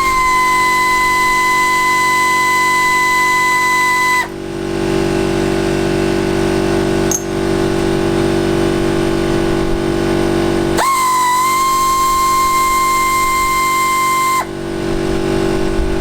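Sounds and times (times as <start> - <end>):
whistle-like tone: 0.0 - 4.4, 10.8 - 14.5
power drill running: 0.0 - 16.0.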